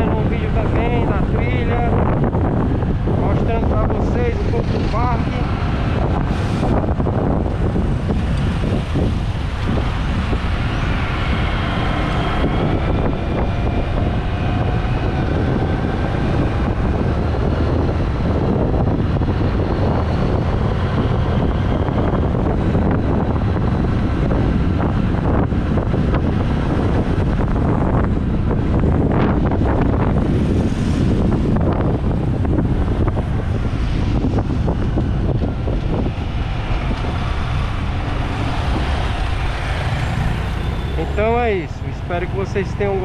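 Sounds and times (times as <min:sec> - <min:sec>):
traffic noise: 0:00.0 - 0:43.0
wind blasting across microphone: 0:00.0 - 0:43.0
motorcycle engine: 0:34.2 - 0:43.0.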